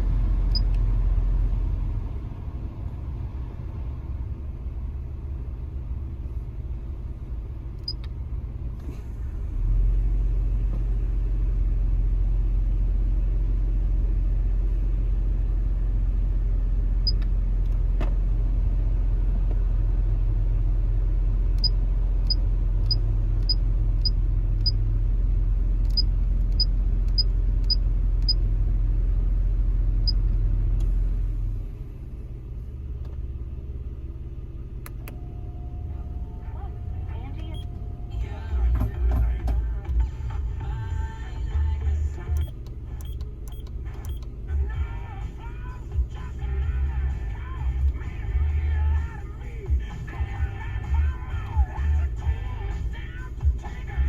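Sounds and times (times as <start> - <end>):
car blower fan rumbling: 0.0 - 54.0
control knob clicks: 42.4 - 44.4.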